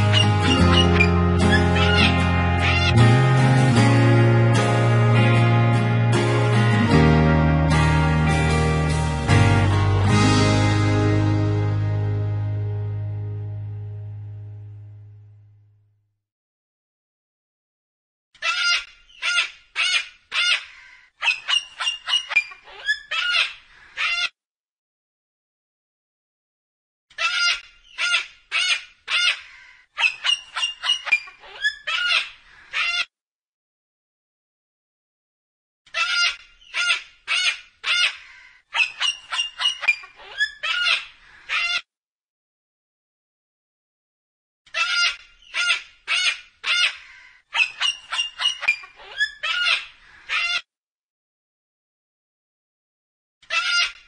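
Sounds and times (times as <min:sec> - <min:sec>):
cockatoo screeching: 0:00.0 - 0:03.0, 0:18.4 - 0:24.3, 0:27.1 - 0:33.1, 0:35.9 - 0:41.8, 0:44.7 - 0:50.7, 0:53.5 - 0:54.0.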